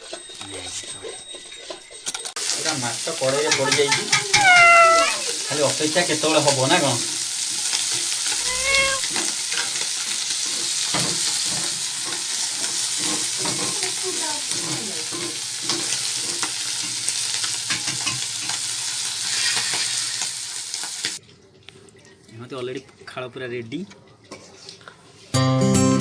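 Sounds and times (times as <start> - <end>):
fish sizzling in hot oil: 2.4 - 21.2
short high cry: 3.4 - 5.5, 8.4 - 9.1.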